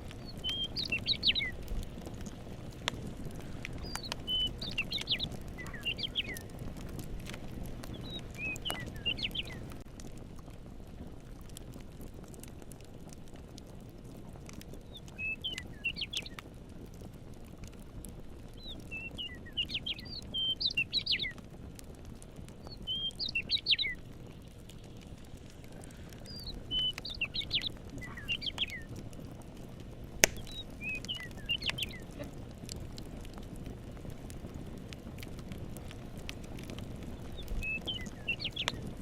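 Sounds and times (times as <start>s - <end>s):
campfire crackling: 0.0s - 39.0s
fire popping: 0.0s - 39.0s
steady low hiss: 0.0s - 39.0s
songbird chirping: 0.2s - 1.7s, 3.7s - 6.5s, 7.8s - 9.8s, 14.9s - 16.4s, 18.6s - 21.4s, 22.6s - 25.1s, 25.7s - 28.9s, 30.2s - 32.3s, 37.2s - 38.8s.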